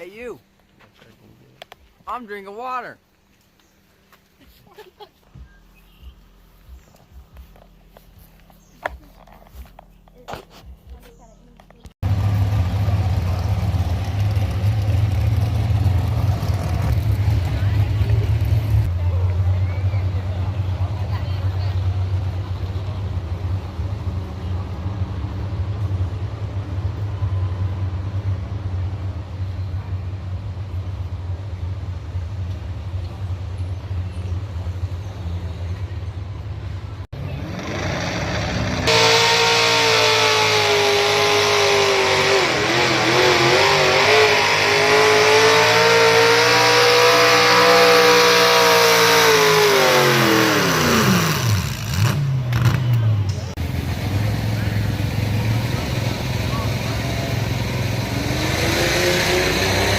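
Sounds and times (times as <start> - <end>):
low engine rumble: 3.0 - 45.3, 49.6 - 58.5
truck engine at full throttle: 12.0 - 59.9.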